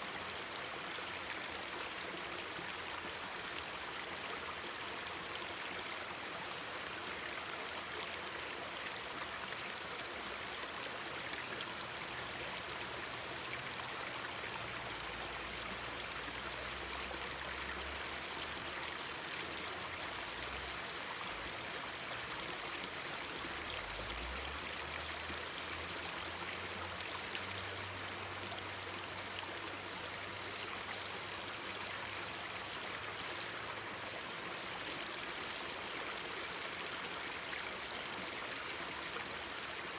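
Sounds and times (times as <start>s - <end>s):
mountain stream babbling: 0.0s - 39.9s.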